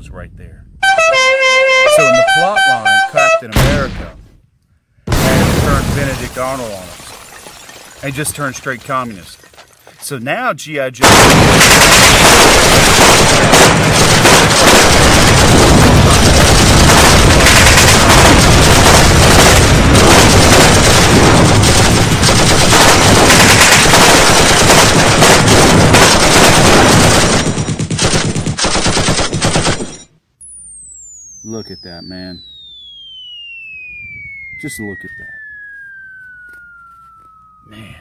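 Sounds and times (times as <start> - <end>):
machine-gun fire: 11.0 - 30.1
falling high whistle: 30.4 - 38.0.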